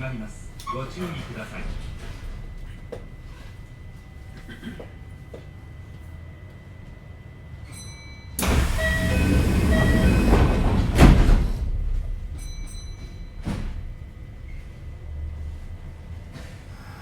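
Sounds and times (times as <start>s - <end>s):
short high door chime: 7.7s - 11.3s, 12.3s - 14.1s
rush of air from door: 8.4s - 12.3s.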